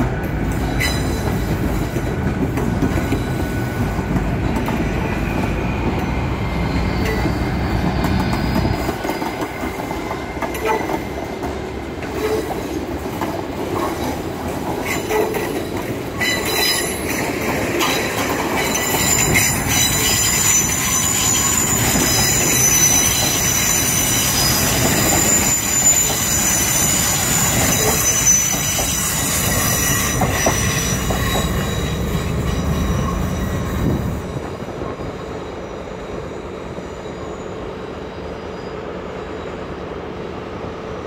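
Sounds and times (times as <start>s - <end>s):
train rumble: 0.0s - 41.0s
high-pitched wheel squeal: 0.7s - 1.6s, 5.0s - 9.8s, 14.8s - 17.2s, 17.8s - 39.7s.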